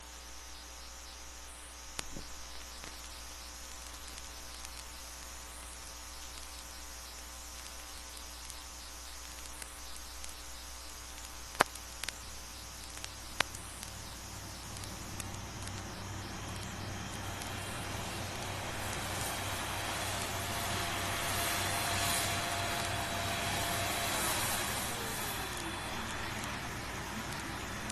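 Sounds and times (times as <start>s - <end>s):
steady hum and hiss: 0.0s - 27.9s
sharp clicks: 6.2s - 23.7s
jet engine spooling up: 13.9s - 27.9s.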